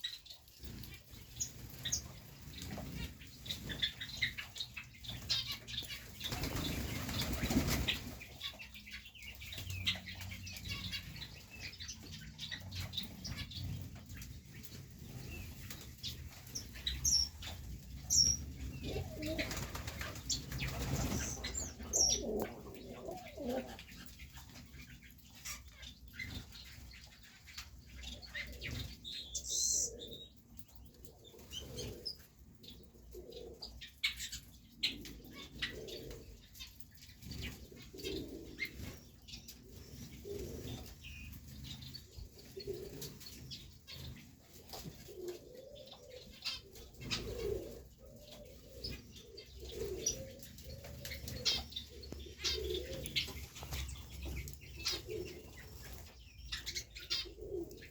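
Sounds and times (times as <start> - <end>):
pigeons cooing: 0.0 - 57.9
wings flapping: 5.2 - 8.5, 19.0 - 21.9, 52.4 - 56.1.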